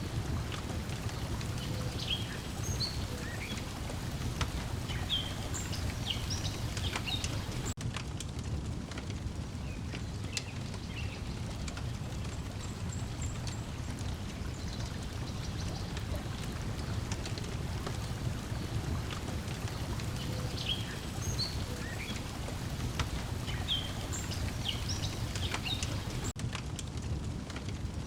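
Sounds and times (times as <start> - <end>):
birds chirping: 0.0 - 7.8, 12.4 - 26.4
waves lapping: 0.0 - 7.8, 11.8 - 26.4
wood fire crackling: 0.0 - 28.0.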